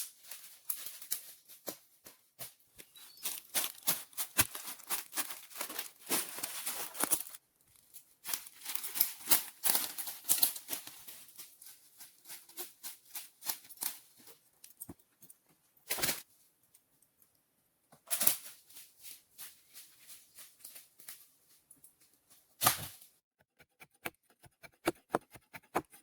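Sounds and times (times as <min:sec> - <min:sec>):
rustling and crackling: 0:00.0 - 0:14.9.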